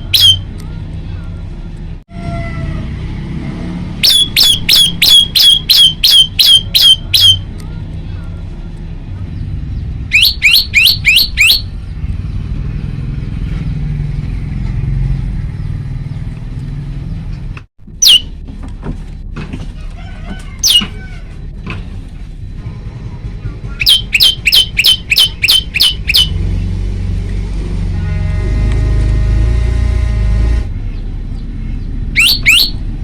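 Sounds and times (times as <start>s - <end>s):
tailorbird calling: 0.0s - 0.4s, 4.0s - 7.4s, 10.1s - 11.9s, 23.4s - 26.4s, 31.7s - 32.9s
steady low rumble: 15.2s - 33.0s.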